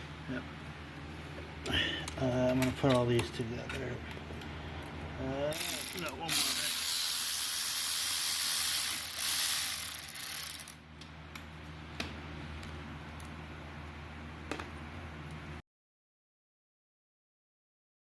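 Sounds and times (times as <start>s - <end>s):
ratchet wrench clicking: 5.5s - 10.8s.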